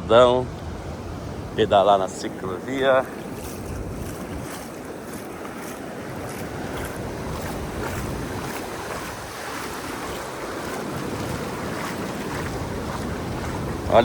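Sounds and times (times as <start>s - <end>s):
ocean surf washing: 0.0s - 14.0s
wind buffeting microphone: 0.0s - 14.0s.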